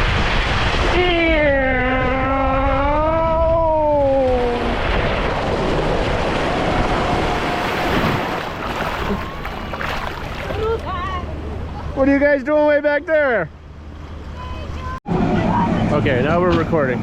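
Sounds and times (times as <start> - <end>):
wind buffeting microphone: 0.0 - 12.0
rushing water: 4.0 - 12.0.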